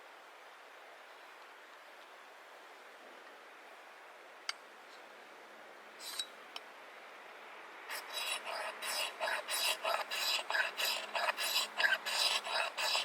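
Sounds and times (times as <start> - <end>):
steady hiss: 0.0 - 13.0
rhythmic rasping strokes: 7.9 - 13.0.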